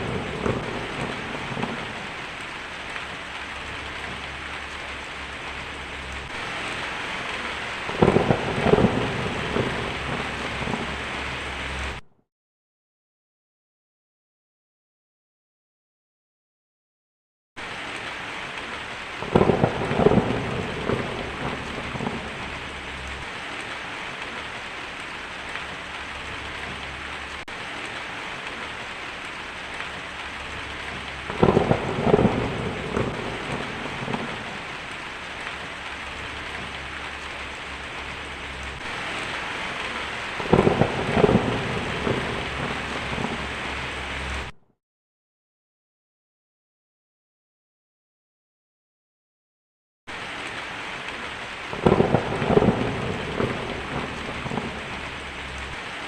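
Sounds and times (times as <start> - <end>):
heavy rain: 0.0 - 12.0, 17.6 - 44.6, 50.1 - 56.0
thunder rumbling: 0.0 - 12.0, 17.6 - 44.6, 51.7 - 56.0.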